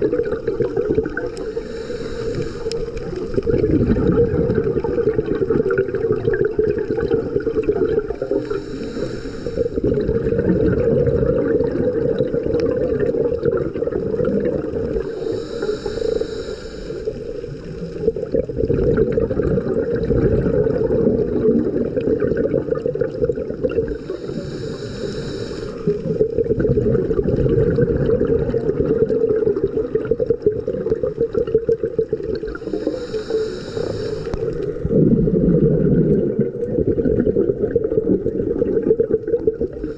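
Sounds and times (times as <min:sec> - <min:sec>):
underwater exhaled air bubbling: 0:00.0 - 0:39.9
regulator hissing inhalation: 0:00.6 - 0:03.5, 0:08.2 - 0:10.1, 0:14.9 - 0:17.9, 0:23.9 - 0:26.4, 0:32.5 - 0:34.9.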